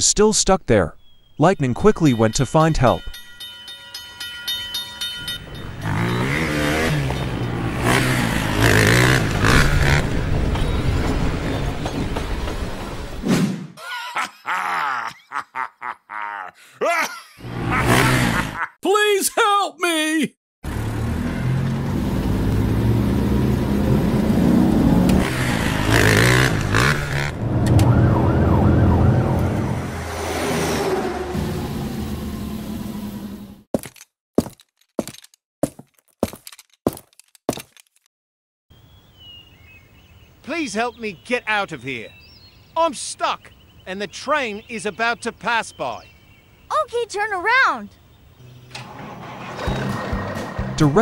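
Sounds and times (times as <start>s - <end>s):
car engine revving: 5.6s - 10.4s, 20.6s - 33.4s
cartoon engine revving: 17.4s - 18.6s
wavering siren-like wail: 27.4s - 30.2s.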